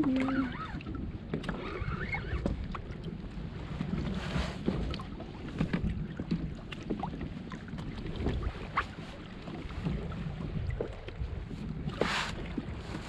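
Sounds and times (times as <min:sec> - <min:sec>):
water lapping against boat hull: 0:00.0 - 0:13.0
wind buffeting microphone: 0:00.0 - 0:13.0
small knocks on boat: 0:03.8 - 0:09.0.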